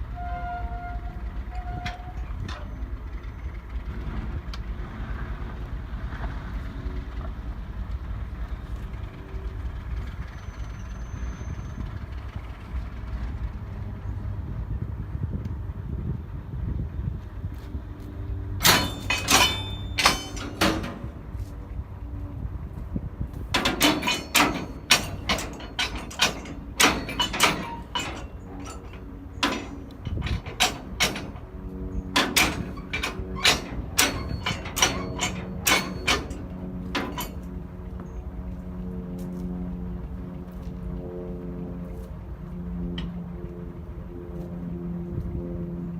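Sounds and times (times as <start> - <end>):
railcars clanking metallically: 0.0 - 14.8, 18.3 - 38.6, 42.2 - 44.2
steady low hum: 11.7 - 45.9.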